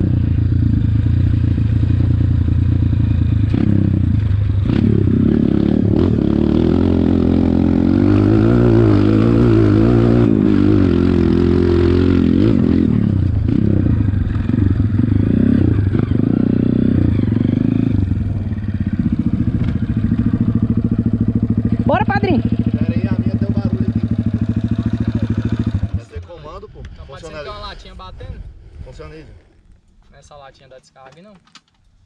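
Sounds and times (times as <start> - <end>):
dirt bike engine revving: 0.0 - 26.2.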